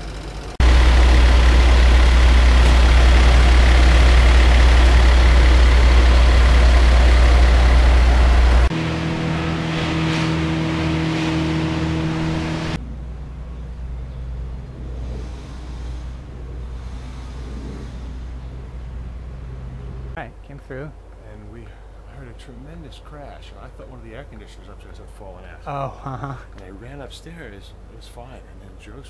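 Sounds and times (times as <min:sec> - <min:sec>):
loud low engine rumble: 0:00.0 - 0:20.2
traffic noise: 0:00.0 - 0:20.2
engine idling hum: 0:00.0 - 0:25.7.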